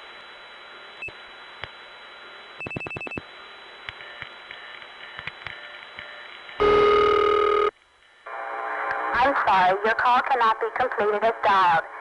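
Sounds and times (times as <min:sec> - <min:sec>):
telephone line hiss: 0:01.0 - 0:07.7
loud steady tone: 0:06.0 - 0:07.7.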